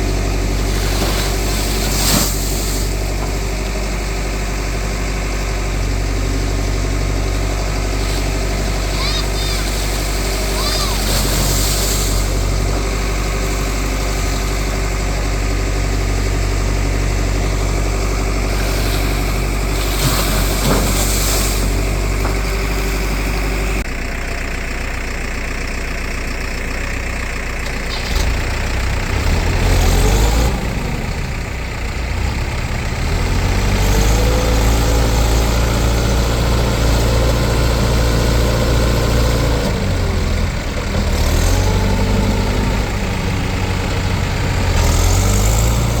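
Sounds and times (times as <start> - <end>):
diesel engine idling: 0.0 - 46.0.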